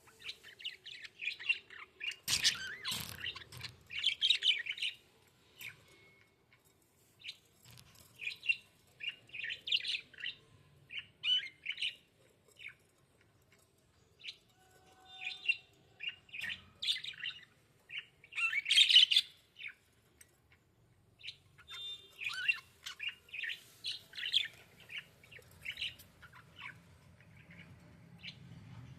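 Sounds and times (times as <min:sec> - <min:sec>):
budgies chirping: 0:21.2 - 0:28.4.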